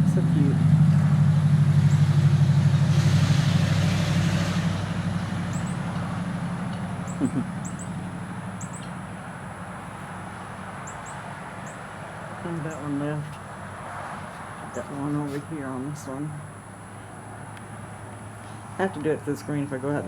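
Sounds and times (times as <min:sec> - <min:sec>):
vehicle engine hum: 0:00.0 - 0:20.0
hummingbird chirps: 0:05.3 - 0:13.6.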